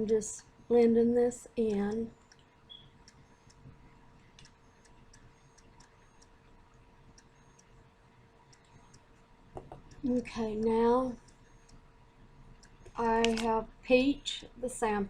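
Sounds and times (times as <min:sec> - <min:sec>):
faint room hum: 0:00.0 - 0:15.0
soft ticks: 0:01.7 - 0:09.2, 0:09.8 - 0:11.9, 0:12.5 - 0:13.6.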